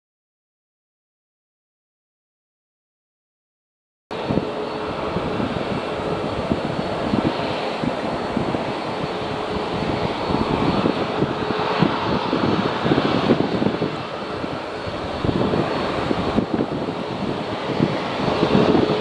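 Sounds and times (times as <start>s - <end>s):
airliner engines rumbling: 4.1s - 19.0s.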